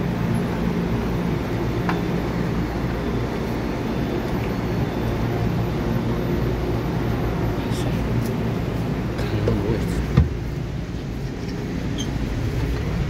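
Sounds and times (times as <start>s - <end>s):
electric train hum and rumble: 0.0s - 13.0s.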